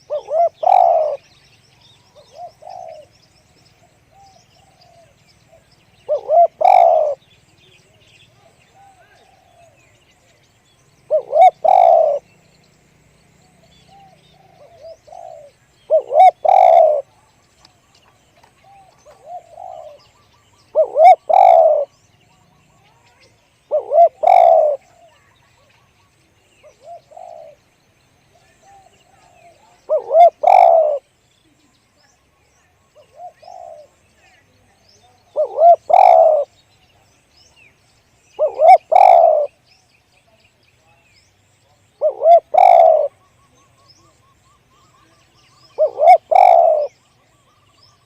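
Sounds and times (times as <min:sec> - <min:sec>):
dove cooing: 0:00.0 - 0:01.3, 0:02.0 - 0:03.1, 0:03.8 - 0:07.2, 0:08.4 - 0:09.8, 0:11.0 - 0:12.3, 0:13.8 - 0:17.3, 0:18.4 - 0:22.0, 0:22.7 - 0:25.7, 0:26.6 - 0:27.6, 0:28.4 - 0:31.6, 0:33.0 - 0:36.6, 0:38.4 - 0:39.6, 0:42.0 - 0:47.7.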